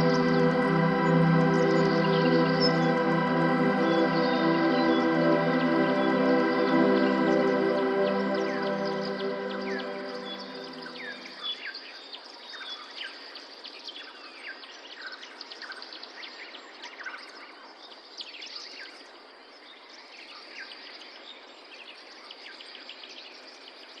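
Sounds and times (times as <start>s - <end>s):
background hiss: 0.0s - 11.3s.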